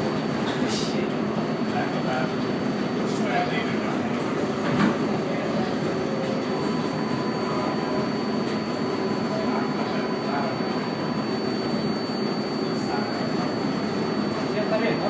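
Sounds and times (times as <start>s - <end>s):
subway wheels rumbling on rails: 0.0s - 15.0s
faint high whine: 5.3s - 15.0s.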